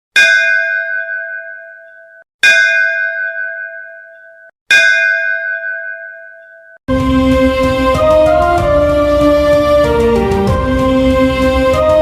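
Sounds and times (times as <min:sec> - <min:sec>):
metal bell ringing: 0:00.2 - 0:06.8.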